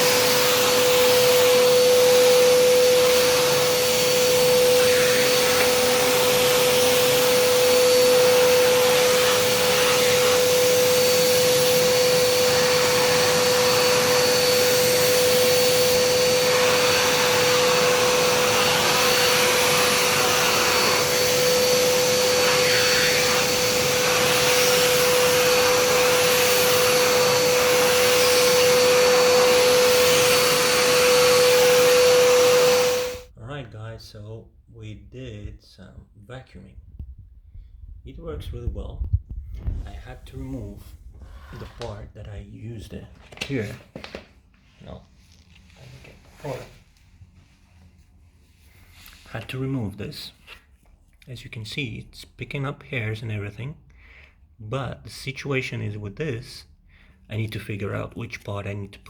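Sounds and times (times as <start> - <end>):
rushing air from vacuum nozzle: 0.0 - 33.3, 39.0 - 42.0
vacuum motor whine: 0.0 - 33.3.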